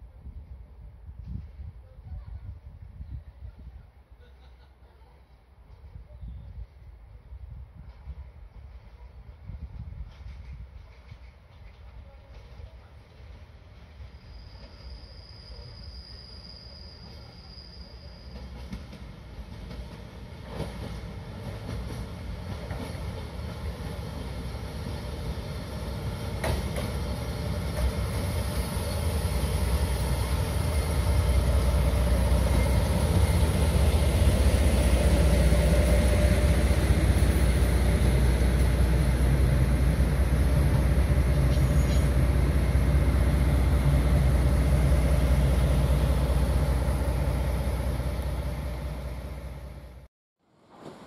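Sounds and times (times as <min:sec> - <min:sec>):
diesel locomotive rumbling past: 0:07.8 - 0:50.1.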